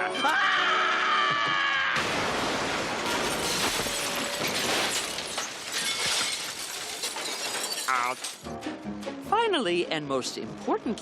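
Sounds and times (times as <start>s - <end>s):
cartoon scream: 0.1s - 2.0s.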